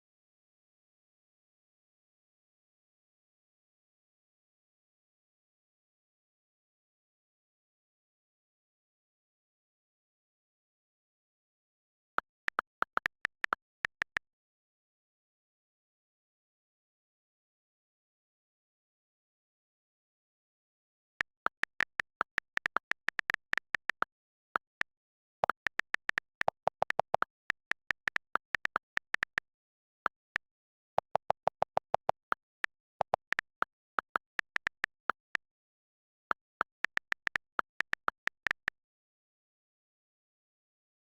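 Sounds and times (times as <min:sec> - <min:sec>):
computer keyboard typing: 0:12.2 - 0:14.2, 0:21.2 - 0:35.4, 0:36.3 - 0:38.7.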